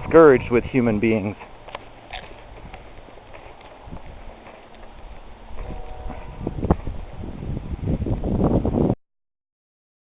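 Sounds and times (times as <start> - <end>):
wind rumble on microphone: 0.0 - 9.0
rustling: 1.2 - 7.0.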